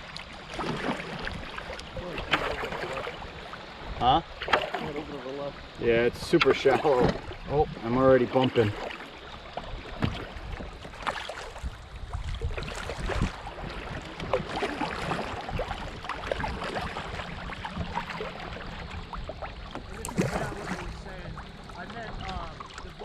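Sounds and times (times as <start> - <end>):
water splashing and sloshing: 0.0 - 23.0
kayak hull scraping bottom: 5.9 - 23.0.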